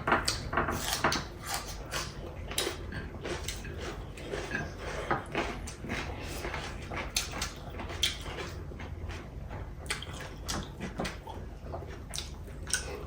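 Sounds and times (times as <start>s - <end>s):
chewing clicks and smacks: 5.3s - 8.6s, 9.8s - 13.0s.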